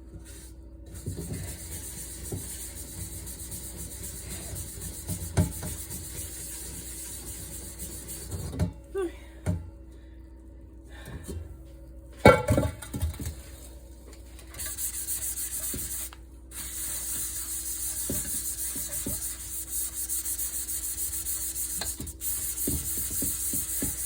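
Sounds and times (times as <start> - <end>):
pan scrubbing: 1.0 - 8.6, 14.3 - 24.0
cookware clattering: 12.2 - 13.2.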